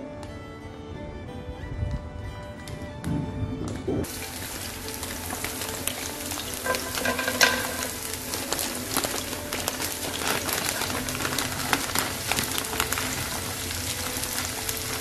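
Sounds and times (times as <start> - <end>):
background music: 0.0 - 15.0
corn tipped into sizzling pan: 4.0 - 15.0
onions sizzling in a frying pan: 4.0 - 15.0.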